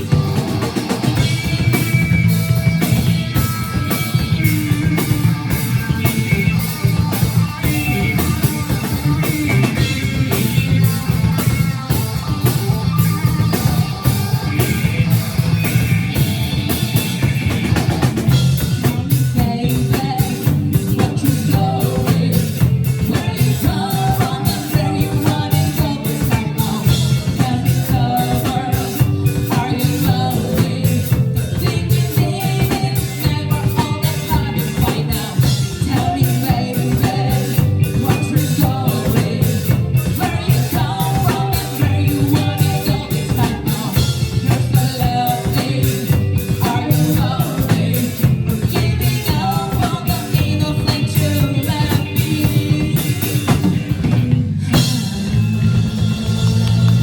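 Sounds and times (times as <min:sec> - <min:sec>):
drum kit: 0:00.0 - 0:57.0
electric guitar: 0:00.0 - 0:57.0
live rock band playing: 0:00.0 - 0:57.0
person singing: 0:18.1 - 0:53.9.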